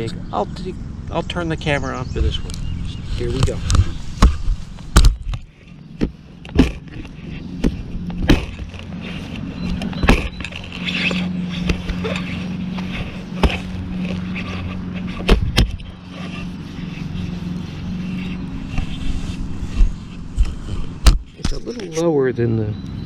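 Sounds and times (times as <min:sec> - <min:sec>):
steady low hum: 0:00.0 - 0:23.0
shovel chopping into soil: 0:06.0 - 0:09.2, 0:09.8 - 0:16.2.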